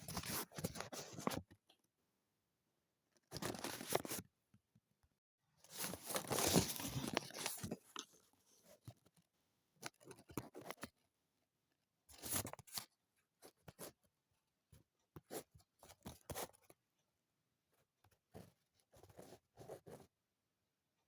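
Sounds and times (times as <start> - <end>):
paper rustling and crackling: 3.4 - 4.2, 5.7 - 8.0.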